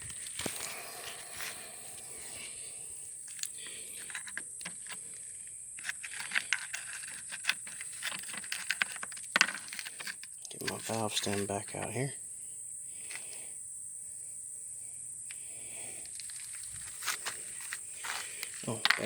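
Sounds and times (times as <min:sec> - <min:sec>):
steady high-pitched hiss: 0:00.0 - 0:19.0
small tools clicking and rattling: 0:03.3 - 0:05.0, 0:05.8 - 0:11.8, 0:18.4 - 0:19.0.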